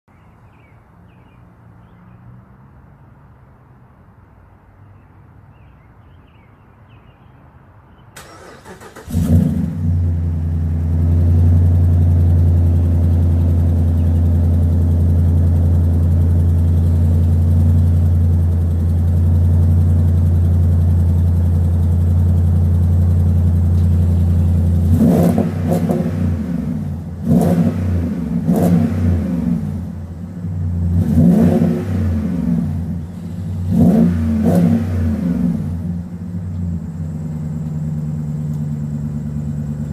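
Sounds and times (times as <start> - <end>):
engine revving: 8.2 - 18.4, 22.4 - 37.3
car engine idling loudly: 10.3 - 25.0.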